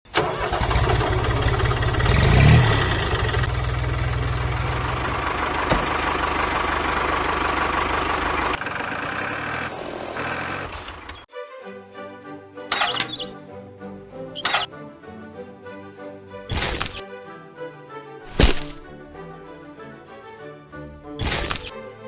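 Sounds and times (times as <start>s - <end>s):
engine pulsing low rumble: 0.6s - 10.4s.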